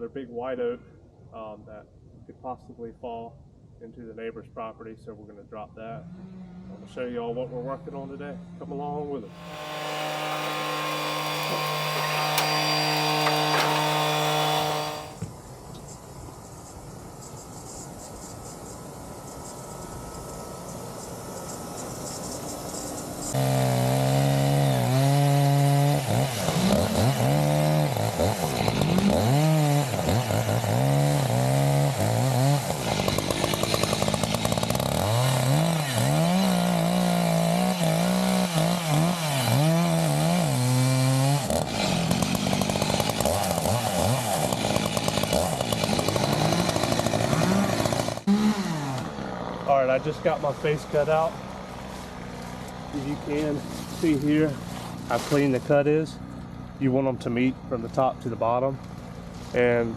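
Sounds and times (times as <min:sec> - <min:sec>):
chainsaw cutting tree: 0:09.3 - 0:15.3, 0:21.4 - 0:55.6.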